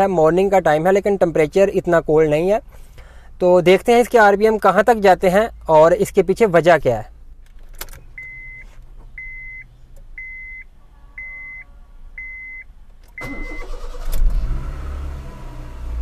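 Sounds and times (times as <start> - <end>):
dashboard warning chime beeping: 8.2 - 14.0
car engine cranking and starting: 12.9 - 16.0
car engine fast idle: 13.2 - 15.8.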